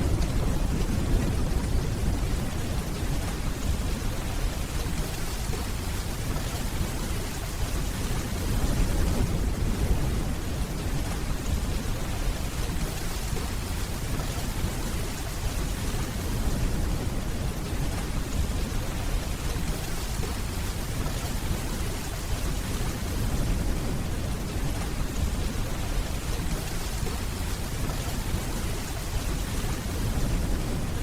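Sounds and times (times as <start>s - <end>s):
distant thunder rumbling: 0.0s - 5.6s
rainfall: 0.0s - 31.0s.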